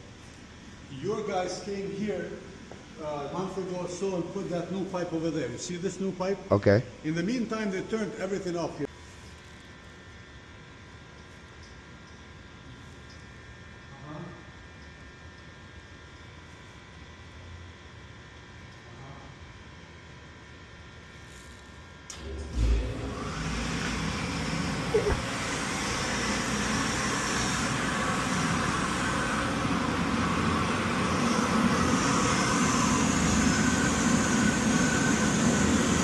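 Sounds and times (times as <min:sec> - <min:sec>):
boiler burner rushing: 0:22.1 - 0:36.0.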